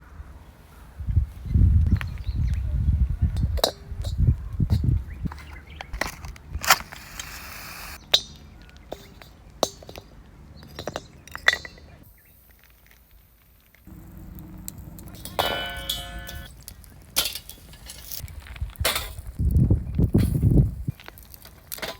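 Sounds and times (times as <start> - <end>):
metal clinks and knocks: 8.1 - 12.0, 14.8 - 16.5.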